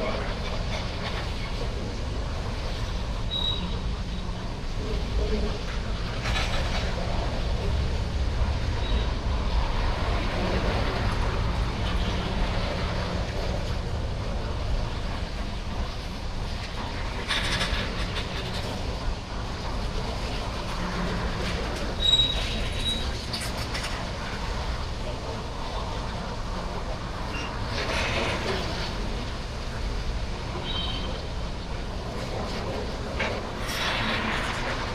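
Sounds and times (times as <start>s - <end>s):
freight train wheels rumbling: 0.0s - 34.9s
high wheel squeal: 3.3s - 4.2s, 22.0s - 23.1s, 30.6s - 31.2s.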